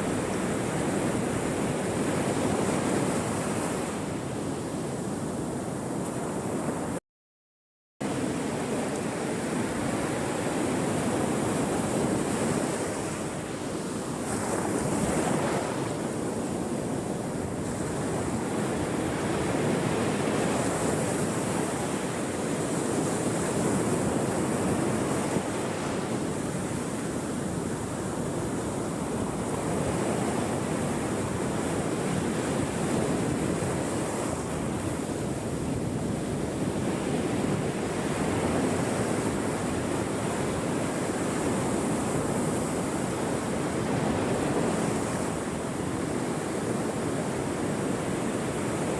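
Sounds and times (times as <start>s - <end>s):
ocean waves breaking on shore: 0.0s - 7.0s, 8.0s - 48.9s.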